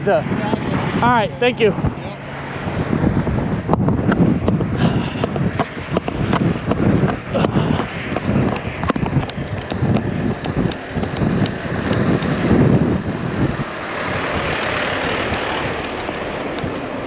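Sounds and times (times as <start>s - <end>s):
heavy truck engine rumble: 0.0s - 17.0s
wind rush: 0.0s - 17.0s
knocks and clatter: 3.7s - 12.4s.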